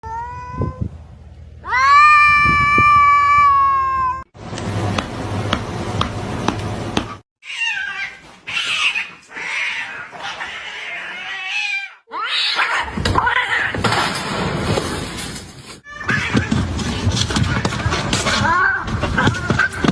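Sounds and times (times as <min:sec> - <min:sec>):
cats yowling: 0:01.6 - 0:04.3, 0:07.4 - 0:13.8, 0:15.9 - 0:16.6.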